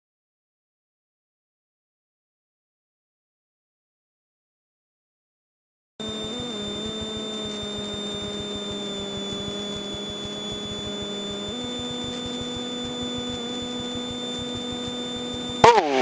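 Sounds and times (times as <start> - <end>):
aircraft engine and propeller drone: 6.0 - 16.0.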